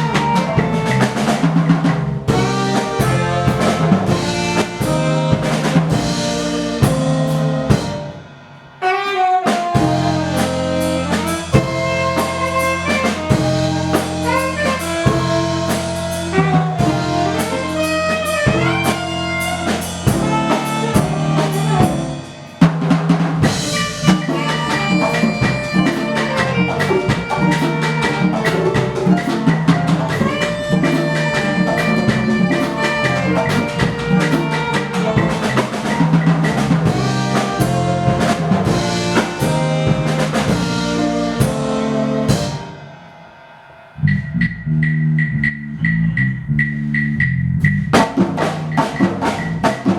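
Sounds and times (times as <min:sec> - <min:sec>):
melodic instrument lines: 0:00.0 - 0:01.6, 0:08.8 - 0:22.5, 0:23.4 - 0:43.1
drums and percussion: 0:00.0 - 0:49.9.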